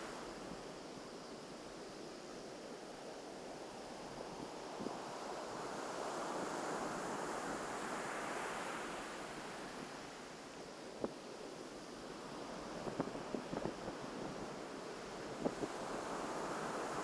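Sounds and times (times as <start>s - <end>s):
wave washing on beach: 12.4s - 17.0s.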